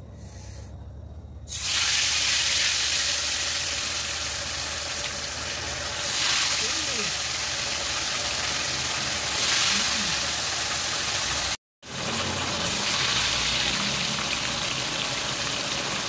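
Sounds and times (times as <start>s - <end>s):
tofu sizzling in hot oil: 1.5s - 16.0s.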